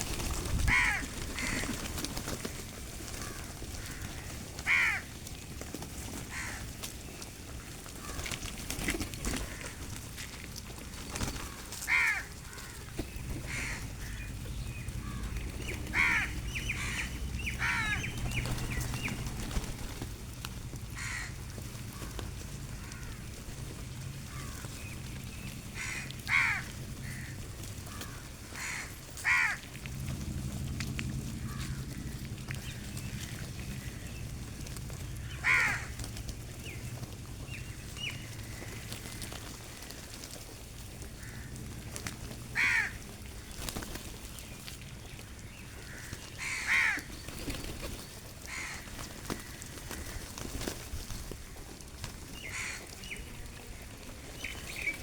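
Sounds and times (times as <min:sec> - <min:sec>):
low background rumble: 0:00.0 - 0:55.0
crows cawing: 0:00.6 - 0:05.2, 0:06.2 - 0:06.8, 0:07.9 - 0:08.4, 0:09.3 - 0:09.9, 0:11.2 - 0:19.1, 0:20.9 - 0:23.4, 0:24.2 - 0:24.9, 0:25.7 - 0:29.7, 0:31.4 - 0:34.2, 0:35.1 - 0:36.8, 0:41.1 - 0:41.8, 0:42.5 - 0:43.7, 0:45.5 - 0:47.3, 0:48.4 - 0:50.7, 0:52.4 - 0:53.2.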